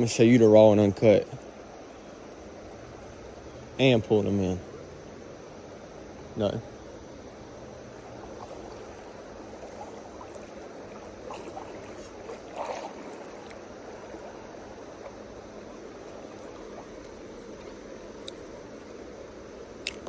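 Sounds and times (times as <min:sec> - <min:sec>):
river water rushing over rocks: 0:08.0 - 0:18.7.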